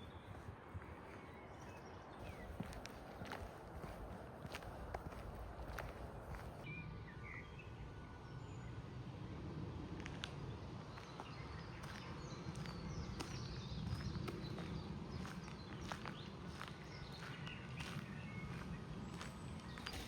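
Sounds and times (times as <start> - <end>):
small birds chirping: 0.0 - 6.6, 10.9 - 20.0.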